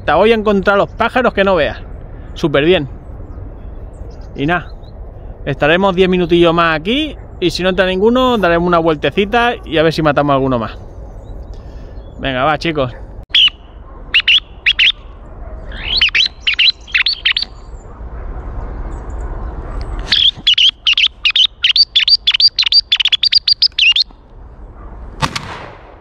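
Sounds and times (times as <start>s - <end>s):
birds chirping: 0.0s - 25.0s
shotgun shot: 25.2s - 26.0s.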